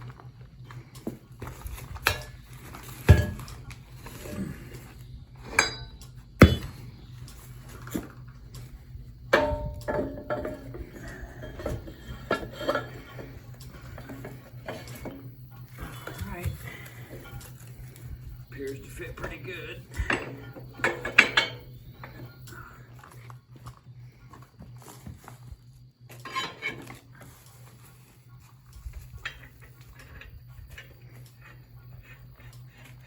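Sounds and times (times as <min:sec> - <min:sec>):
low hum: 0:00.0 - 0:33.0
metal clanks and clinks: 0:01.0 - 0:04.5, 0:05.4 - 0:07.1, 0:07.8 - 0:23.2, 0:26.1 - 0:33.0.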